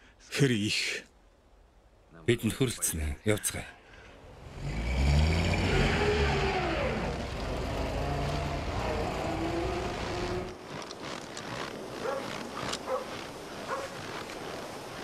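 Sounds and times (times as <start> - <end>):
car engine revving: 4.3 - 10.6.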